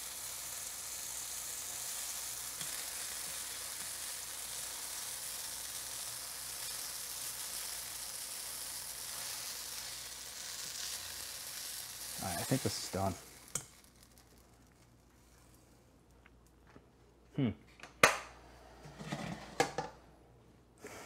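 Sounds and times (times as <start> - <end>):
fig sizzling in a wok: 0.0 - 15.8.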